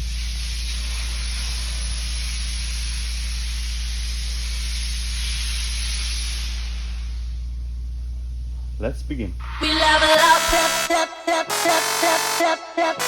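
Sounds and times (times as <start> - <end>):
steady hiss: 0.0 - 8.8
low hum: 6.8 - 13.0.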